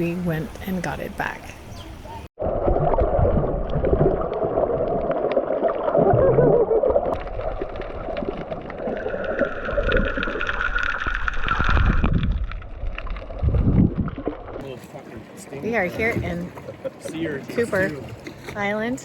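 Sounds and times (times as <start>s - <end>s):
water noise: 0.0s - 19.0s.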